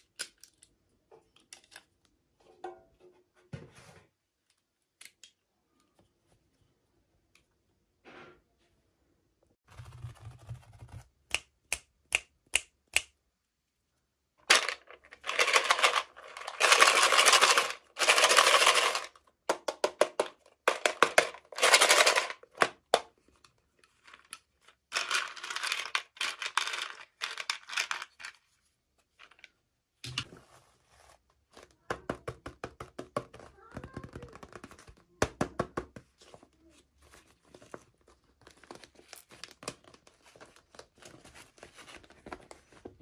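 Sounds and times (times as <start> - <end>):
packaging rustling: 14.5 - 19.1
packaging clicks and taps: 14.5 - 24.4, 31.8 - 36.4.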